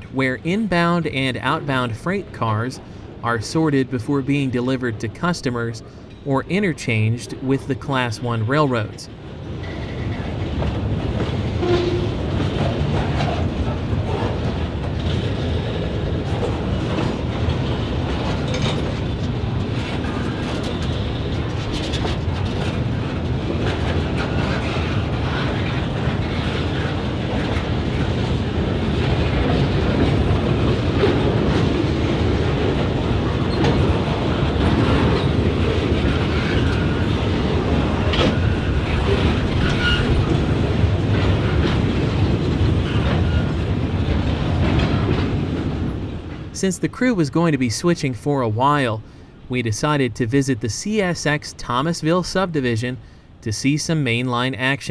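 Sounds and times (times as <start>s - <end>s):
freight train rolling: 0.0s - 54.9s
wheels clicking over rail joints: 9.4s - 46.5s.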